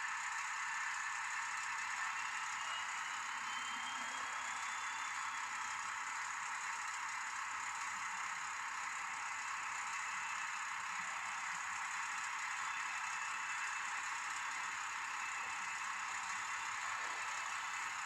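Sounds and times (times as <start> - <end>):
model train motor whirring: 9.0 - 18.0.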